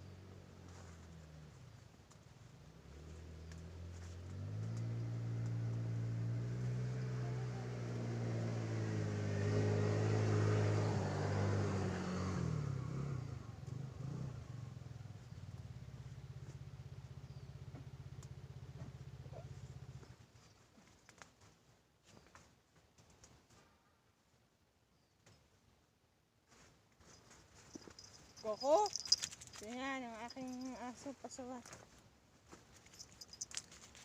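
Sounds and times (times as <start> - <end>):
low engine hum: 0.0 - 20.3, 27.7 - 31.7
vehicle engine passing by: 2.6 - 20.2, 27.7 - 31.2.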